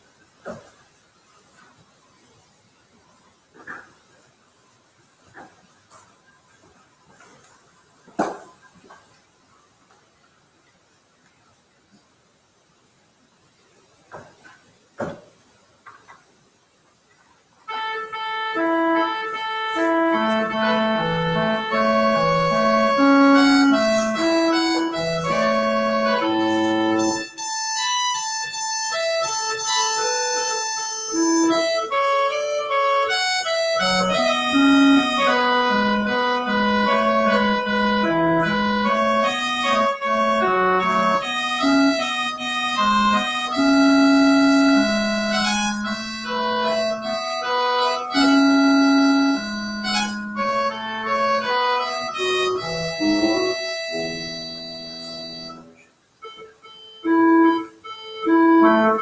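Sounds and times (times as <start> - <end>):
organ playing slow piece: 17.7 - 59.0.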